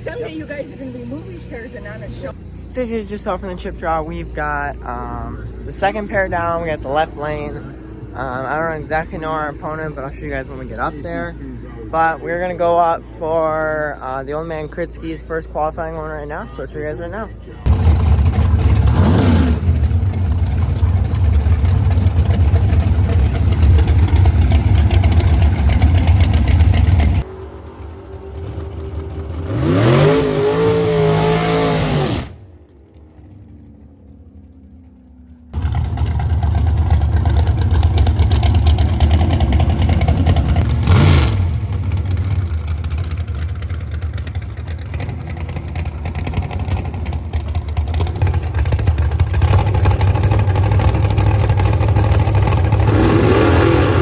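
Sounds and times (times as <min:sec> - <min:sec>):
drag race car engines running: 0:00.0 - 0:54.0
engine revving: 0:17.7 - 0:32.6, 0:35.5 - 0:54.0.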